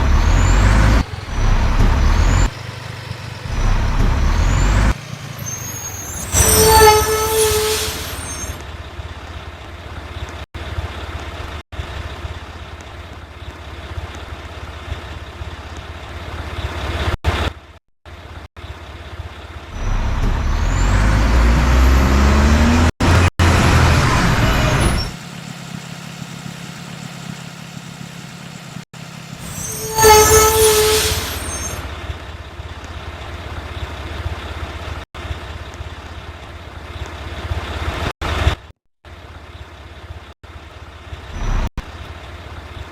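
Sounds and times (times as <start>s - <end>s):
garbage truck diesel engine idling: 31.9s - 37.9s.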